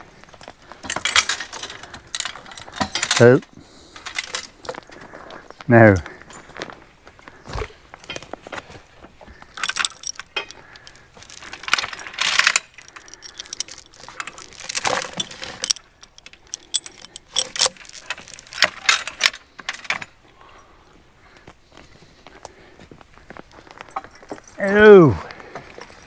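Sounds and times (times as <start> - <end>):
metal chain rattling: 0.0 - 6.6, 9.4 - 20.7, 23.7 - 26.0.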